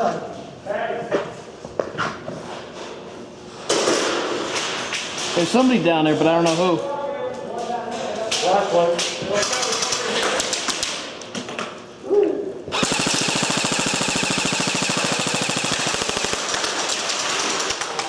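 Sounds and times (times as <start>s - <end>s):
airsoft gun firing full auto: 12.7s - 18.0s.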